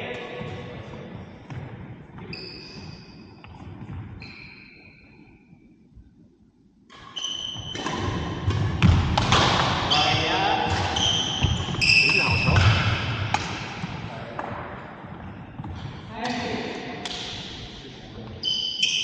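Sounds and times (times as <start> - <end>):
shoes squeaking on floor: 0.4 - 5.4, 7.0 - 8.4, 9.8 - 13.2, 18.4 - 19.0.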